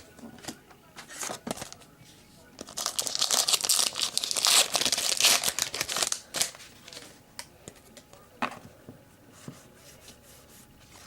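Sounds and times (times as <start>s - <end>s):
wrapper crinkling and tearing: 2.6s - 7.1s.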